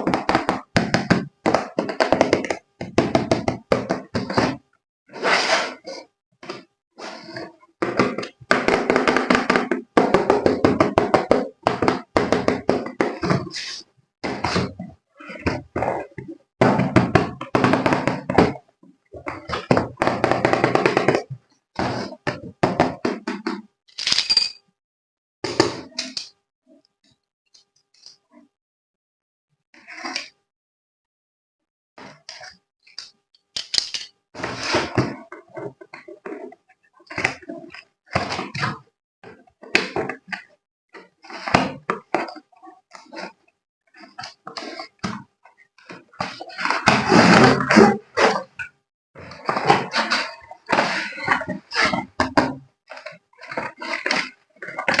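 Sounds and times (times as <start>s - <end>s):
objects knocking and tapping: 7.8s - 24.7s.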